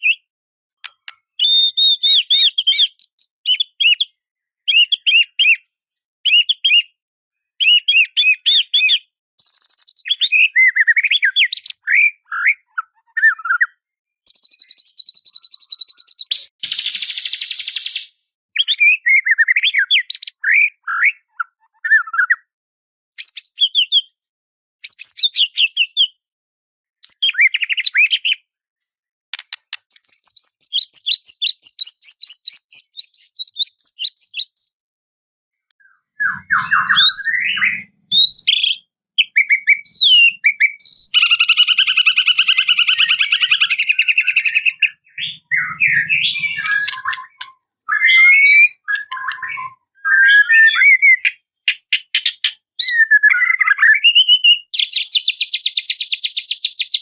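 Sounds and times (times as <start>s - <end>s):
bird singing whistled phrases: 0.0s - 0.3s, 0.9s - 7.0s, 7.6s - 22.5s, 23.2s - 24.2s, 24.8s - 26.2s, 27.0s - 28.5s, 29.9s - 34.8s, 35.8s - 57.0s
high bird trill: 35.8s - 51.3s.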